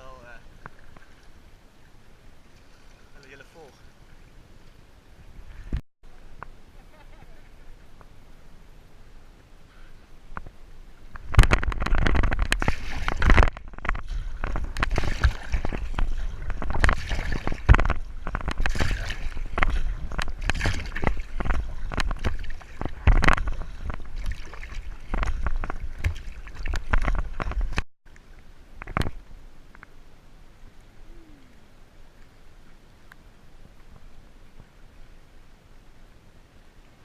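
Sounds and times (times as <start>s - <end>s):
paddle splashes: 0.2s - 5.8s, 9.6s - 29.7s
water sloshing against kayak: 0.2s - 5.8s, 9.4s - 29.7s
wind rumbling on microphone: 3.8s - 37.0s.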